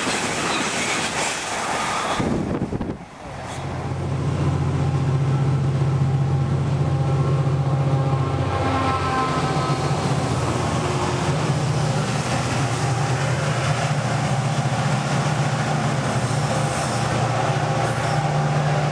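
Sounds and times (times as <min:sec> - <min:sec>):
train rushing past: 0:00.0 - 0:18.9.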